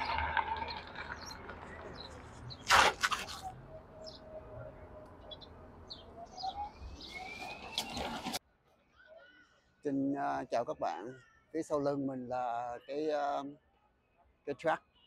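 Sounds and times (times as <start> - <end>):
outdoor background noise: 0.0 - 15.0
small birds chirping: 3.4 - 8.4.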